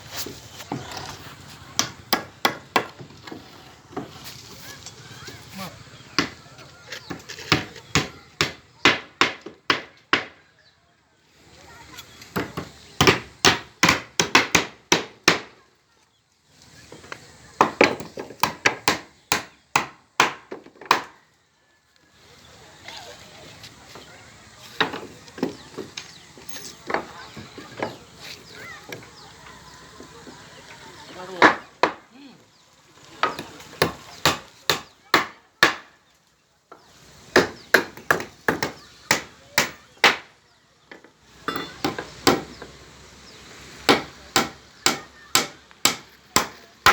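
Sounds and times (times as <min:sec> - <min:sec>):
hammer strikes: 0:41.4 - 0:42.6, 0:43.9 - 0:46.9.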